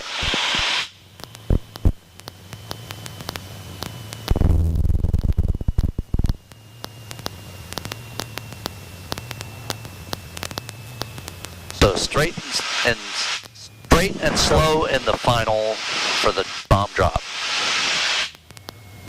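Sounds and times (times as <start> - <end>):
radio hiss: 0.0 - 2.0, 9.4 - 18.4
low rumbling noise: 4.2 - 6.5, 11.5 - 18.3.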